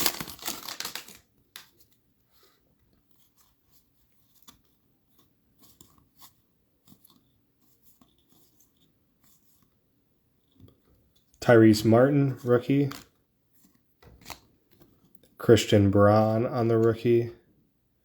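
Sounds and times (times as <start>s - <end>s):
wrapper crinkling: 0.0s - 2.0s, 12.8s - 13.1s.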